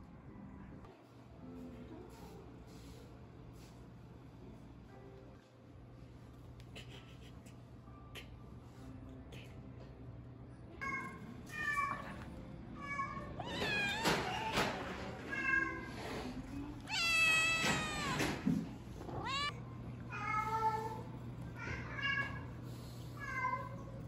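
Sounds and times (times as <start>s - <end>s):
cat meowing: 12.8s - 15.9s, 16.8s - 19.6s.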